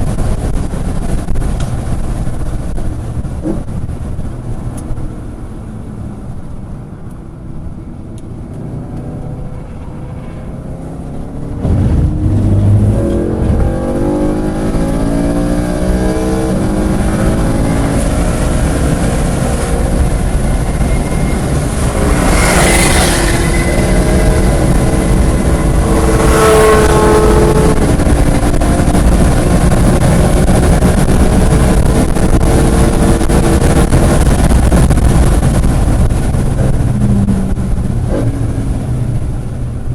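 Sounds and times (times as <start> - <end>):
race car engine accelerating: 8.4 - 38.6
rushes of noise: 8.4 - 39.4.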